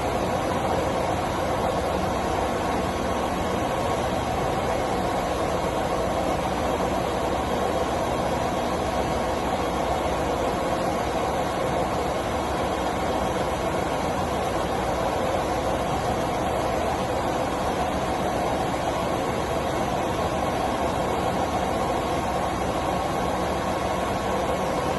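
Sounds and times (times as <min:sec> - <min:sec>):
faint constant tone: 0:00.0 - 0:24.9.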